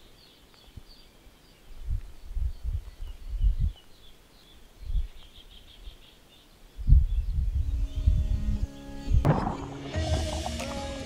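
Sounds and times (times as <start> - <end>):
small birds chirping: 0.0 - 9.2
low dull thumps: 9.2 - 10.8.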